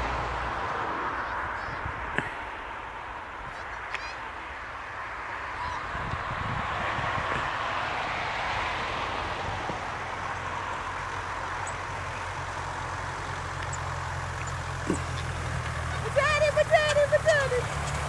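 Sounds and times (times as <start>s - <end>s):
truck engine running: 9.1s - 18.0s.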